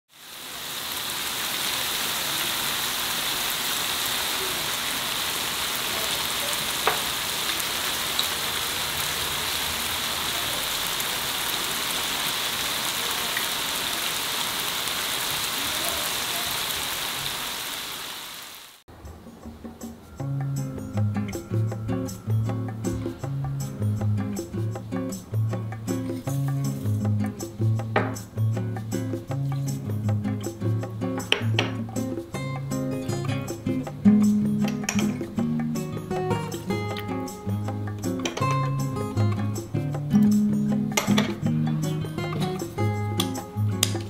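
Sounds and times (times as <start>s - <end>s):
meat sizzling in grill pan: 0.1s - 18.8s.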